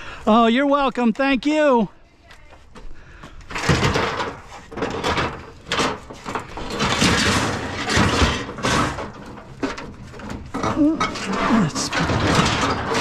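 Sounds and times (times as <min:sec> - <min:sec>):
scrap knocks: 0:03.5 - 0:13.0
scrap scraping and sliding: 0:03.5 - 0:13.0.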